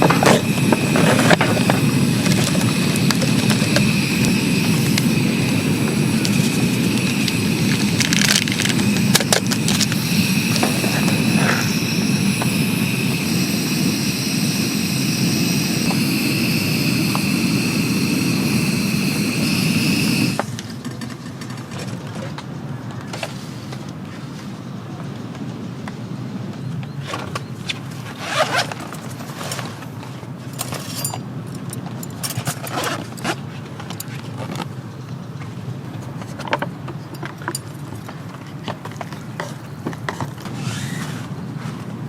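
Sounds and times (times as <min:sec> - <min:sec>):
thin high whine: 0:00.0 - 0:20.7
steady rushing roar: 0:00.0 - 0:21.0.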